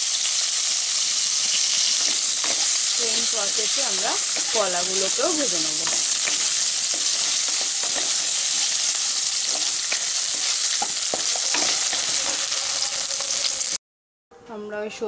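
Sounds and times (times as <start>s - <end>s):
food sizzling in hot oil: 0.0s - 13.8s
spatula tapping and scraping pan: 1.8s - 3.0s, 4.0s - 12.5s.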